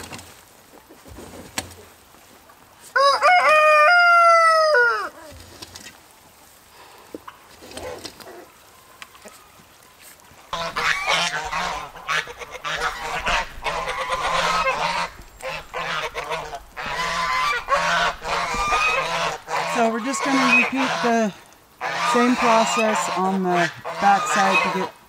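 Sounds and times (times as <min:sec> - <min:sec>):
geese honking: 0:10.5 - 0:25.0.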